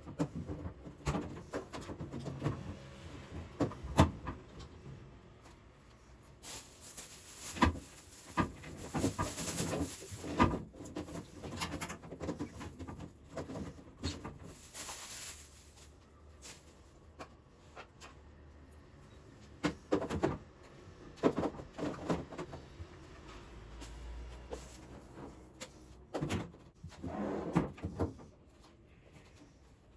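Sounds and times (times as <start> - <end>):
packaging rustling: 6.4 - 11.5, 14.3 - 16.6
items knocking and clunking: 6.5 - 15.9.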